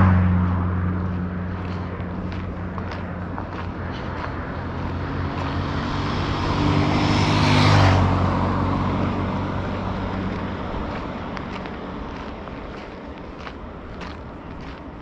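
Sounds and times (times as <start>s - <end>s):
vehicle engine hum passing: 0.0s - 15.0s.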